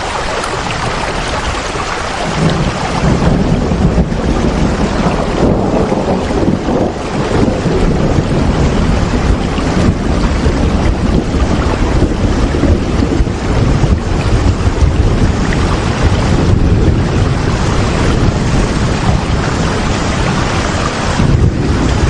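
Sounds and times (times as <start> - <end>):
heavy rain: 0.0 - 22.0
deep rumble: 0.5 - 22.0.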